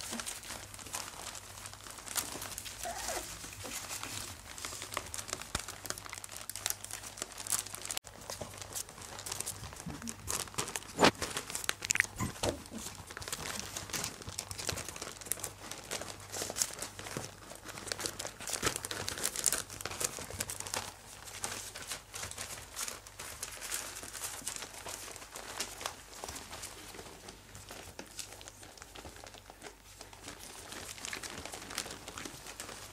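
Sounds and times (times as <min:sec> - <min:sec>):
puppies rustling on crinkly bedding: 0:00.0 - 0:32.9.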